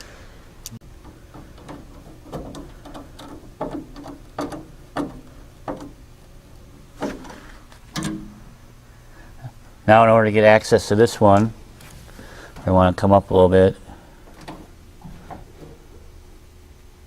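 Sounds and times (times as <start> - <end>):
tool tapping on metal: 1.0 - 6.0.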